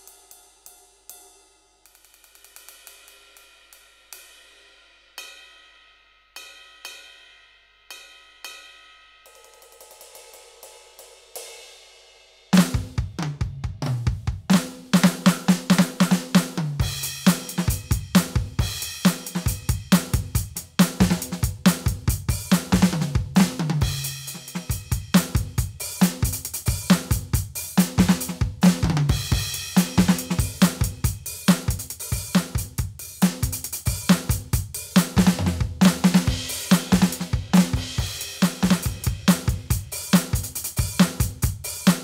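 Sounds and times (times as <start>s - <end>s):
electronic drum kit groove: 12.6s - 42.0s.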